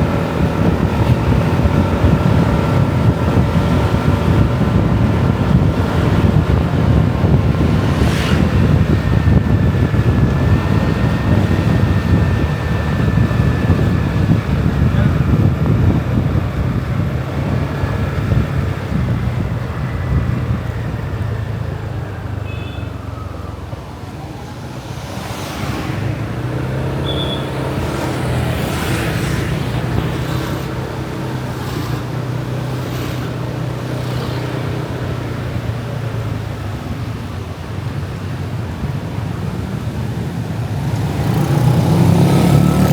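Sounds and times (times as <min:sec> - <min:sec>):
wind on microphone: 0:00.0 - 0:21.5
motorbike engine running: 0:00.0 - 0:21.8
traffic passing: 0:00.0 - 0:42.9.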